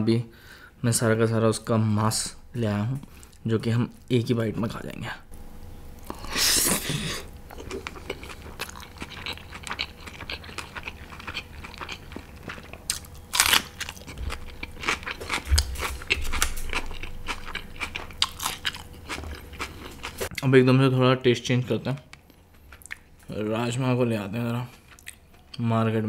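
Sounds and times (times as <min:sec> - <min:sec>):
chewing and crunching food: 0:06.0 - 0:20.4, 0:22.1 - 0:23.4, 0:24.4 - 0:25.8.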